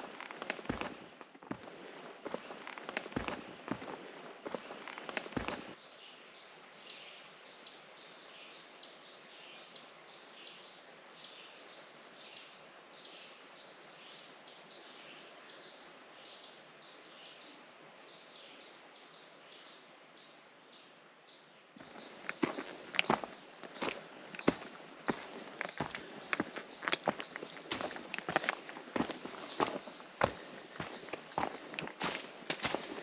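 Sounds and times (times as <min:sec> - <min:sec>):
birds chirping: 0:00.0 - 0:07.8, 0:20.7 - 0:33.0
faint background rush: 0:19.9 - 0:33.0.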